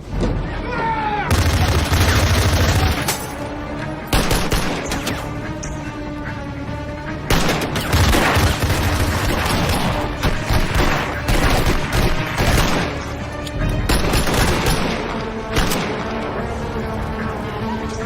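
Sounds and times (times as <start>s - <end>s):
orchestral action film score: 0.0s - 18.0s
gunfire bursts: 1.3s - 3.2s, 4.1s - 5.3s, 7.3s - 13.0s, 13.9s - 16.1s.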